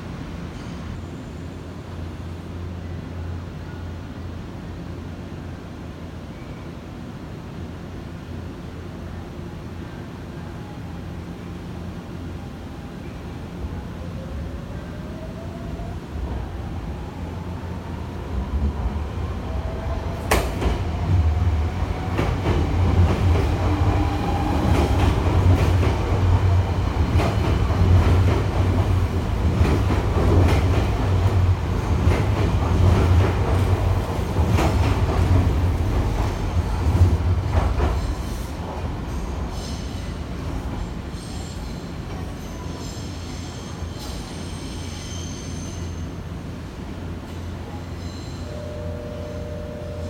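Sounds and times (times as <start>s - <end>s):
electric train motor whine: 48.5s - 50.0s.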